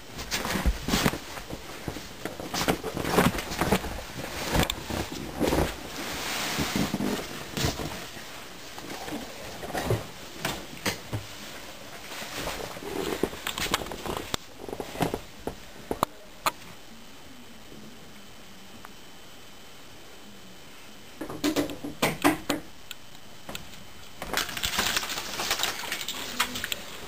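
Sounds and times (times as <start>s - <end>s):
fabric rustling: 0.1s - 9.4s
body dragged across floor: 0.2s - 10.2s, 11.2s - 15.3s.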